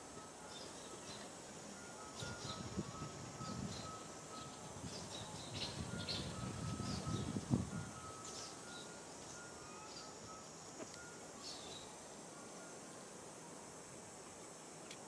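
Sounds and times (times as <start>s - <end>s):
small birds chirping: 2.0s - 12.0s.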